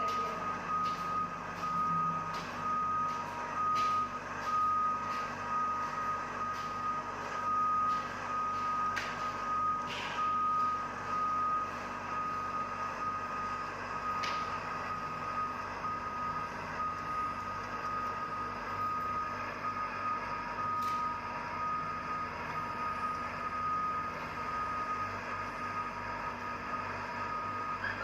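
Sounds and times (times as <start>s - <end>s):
high steady tone: 0.0s - 27.9s
heavy machinery noise: 0.0s - 28.0s
lower tone: 0.0s - 28.0s.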